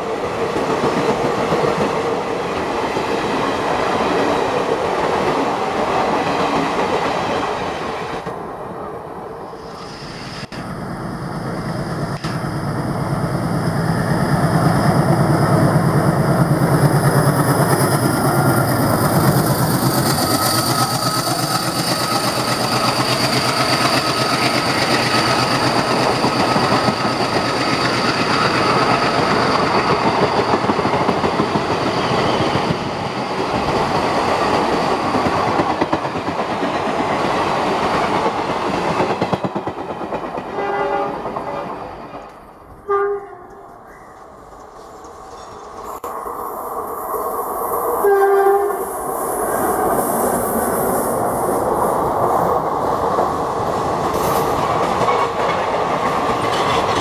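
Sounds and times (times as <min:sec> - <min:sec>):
diesel locomotive engine throbbing: 0:10.5 - 0:31.6
train wheels rattling and clattering: 0:13.7 - 0:42.7, 0:51.7 - 0:57.0
locomotive horn blasts: 0:40.6 - 0:41.7, 0:42.8 - 0:43.6, 0:48.0 - 0:48.8.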